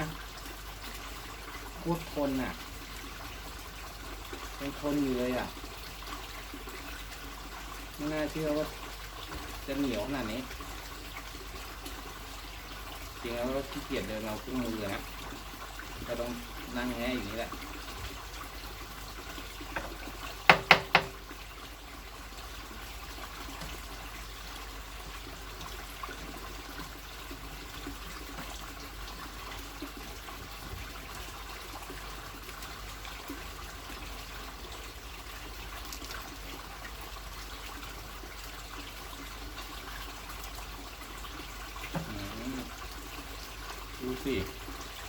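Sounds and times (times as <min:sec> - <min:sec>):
running water trickling: 0:00.0 - 0:45.0
sharp knocks: 0:19.8 - 0:21.2.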